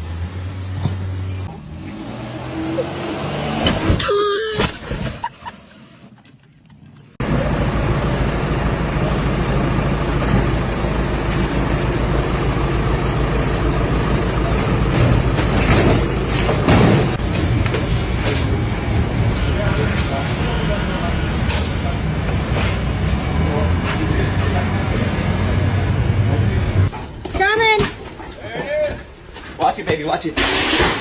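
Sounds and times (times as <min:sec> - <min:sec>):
large engine pulsing rumble: 0:07.1 - 0:26.9.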